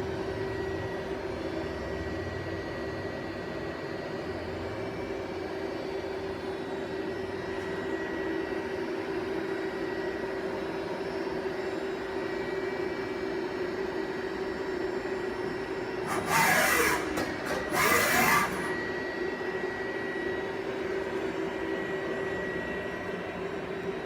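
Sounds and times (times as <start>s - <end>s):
lathe humming: 16.1s - 19.0s.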